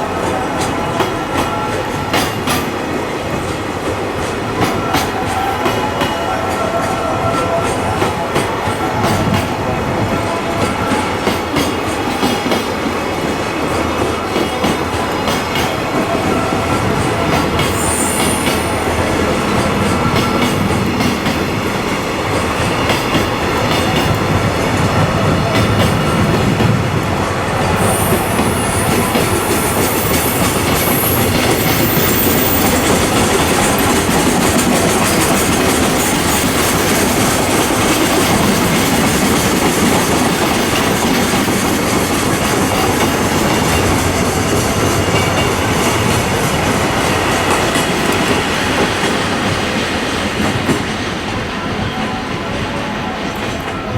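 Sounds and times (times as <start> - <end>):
train wheels clattering over joints: 6.9 - 51.3
high-pitched wheel squeal: 17.3 - 20.5.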